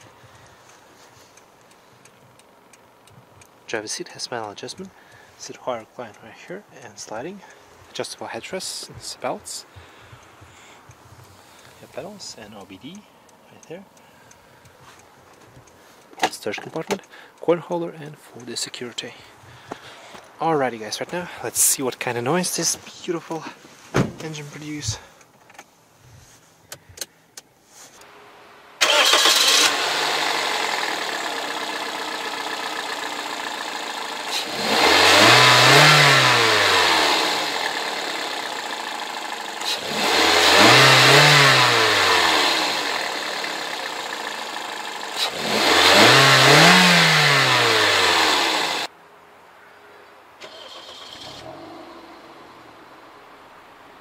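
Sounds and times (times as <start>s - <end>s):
starter clicks: 28.8s - 29.8s
car engine starting and revving: 28.8s - 48.9s, 50.4s - 52.7s.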